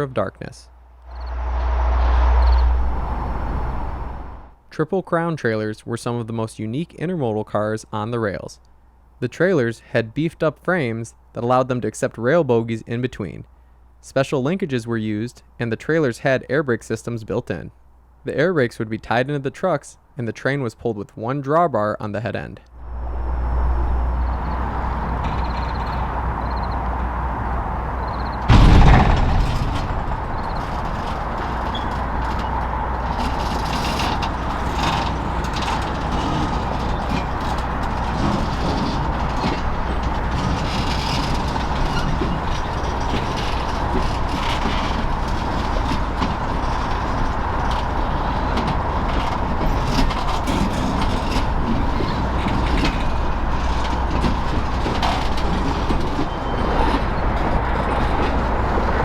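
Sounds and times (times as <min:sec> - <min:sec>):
high squeal: 0:01.0 - 0:04.5, 0:22.8 - 0:26.9, 0:28.0 - 0:28.5, 0:30.3 - 0:30.8
train rolling on track: 0:01.1 - 0:04.6, 0:22.8 - 0:59.0
clicks and clanks: 0:28.5 - 0:58.4.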